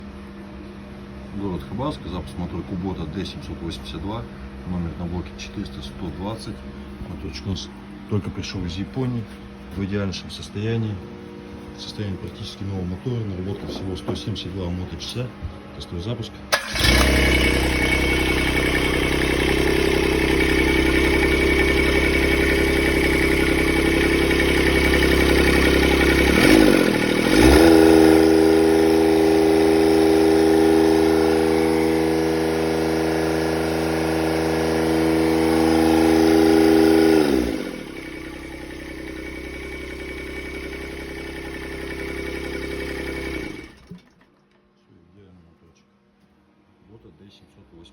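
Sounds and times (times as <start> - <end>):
diesel engine running: 16.5 - 44.0.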